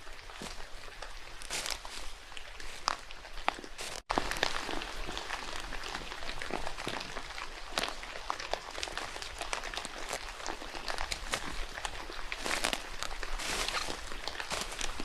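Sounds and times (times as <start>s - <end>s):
rain falling in forest: 0.0s - 15.0s.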